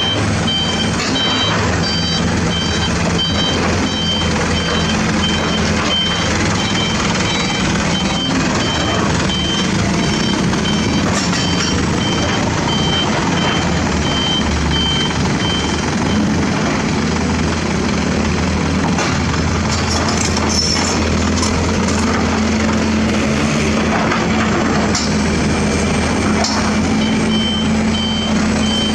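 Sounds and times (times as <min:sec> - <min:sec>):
backup alarm beeping: 0:00.0 - 0:16.4, 0:26.9 - 0:28.9
diesel engine drone: 0:00.0 - 0:28.9.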